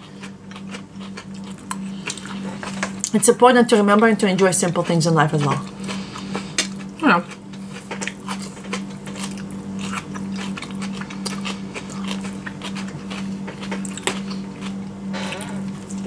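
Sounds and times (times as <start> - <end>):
people biting and chewing food: 0.0 - 3.2, 4.4 - 16.0
steady low hum: 0.0 - 16.0.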